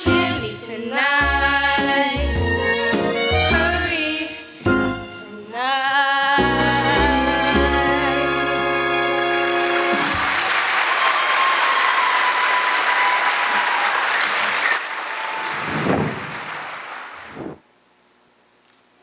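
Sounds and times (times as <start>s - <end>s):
audience applauding: 9.4s - 17.6s.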